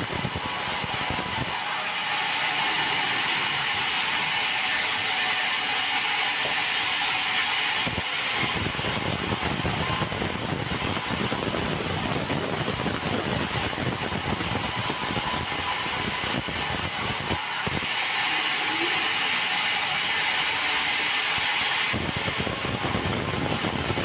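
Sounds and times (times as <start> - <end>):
band saw hissing: 14.6 - 23.0.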